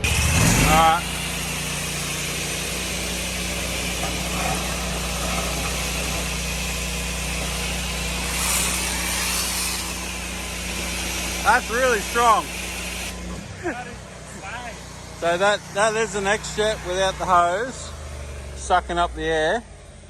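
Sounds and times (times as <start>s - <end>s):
high-pressure spray hissing: 0.0s - 13.3s
pressure washer engine hum: 0.0s - 20.0s.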